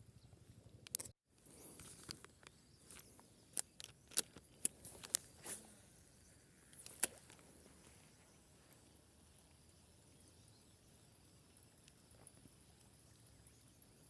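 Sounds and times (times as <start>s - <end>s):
faint outdoor background: 0.0s - 14.0s
sharp clicks and ticks: 0.7s - 1.2s, 2.0s - 5.3s.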